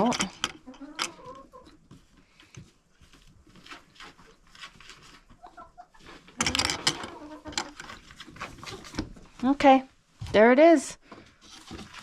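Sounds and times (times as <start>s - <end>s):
chickens clucking: 0.0s - 2.8s, 3.6s - 9.3s
clatter of knocks and rattles: 6.3s - 9.3s.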